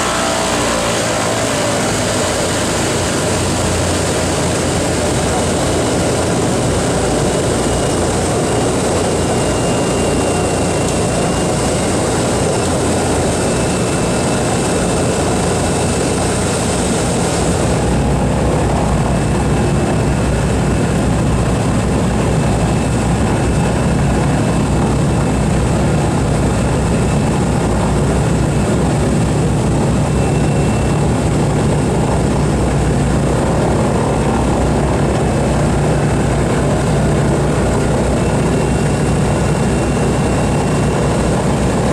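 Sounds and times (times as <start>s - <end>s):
radial piston engines running: 0.0s - 41.9s.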